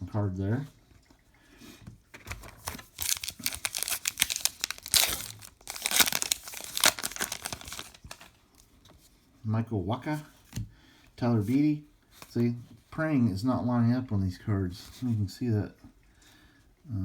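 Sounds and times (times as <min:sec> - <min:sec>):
wrapper tearing and crinkling: 0:02.3 - 0:08.4.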